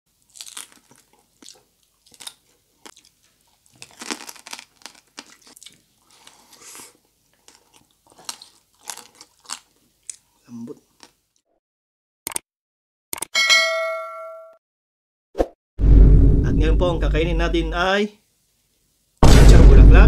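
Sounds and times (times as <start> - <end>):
crunching crispy pork skin: 0.1 - 10.2
wet chewing: 0.1 - 11.2.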